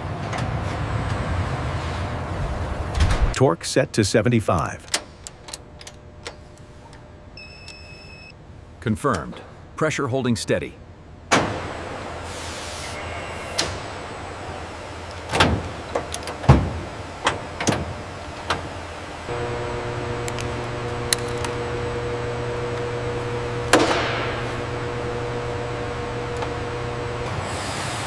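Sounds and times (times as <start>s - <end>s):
low machinery hum: 0.0s - 28.0s
machine humming and whining: 10.8s - 28.0s.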